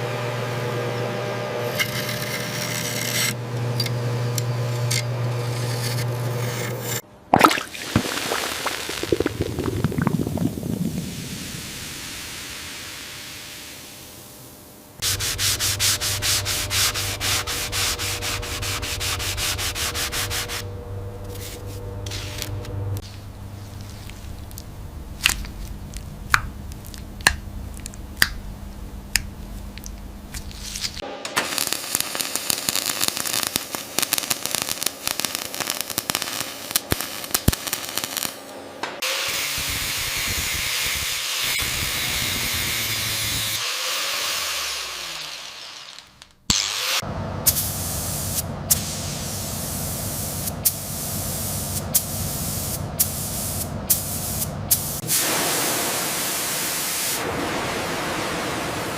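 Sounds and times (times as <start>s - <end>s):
sandblasting hiss: 10.9s - 20.7s, 21.3s - 22.6s, 30.6s - 38.4s, 39.0s - 45.8s, 46.8s - 58.9s.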